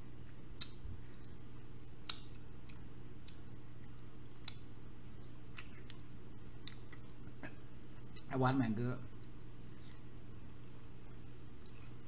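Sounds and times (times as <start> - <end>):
steady low hum: 0.0 - 12.0
wet mouth clicks and smacks: 2.0 - 3.4, 4.4 - 4.7, 5.5 - 7.2.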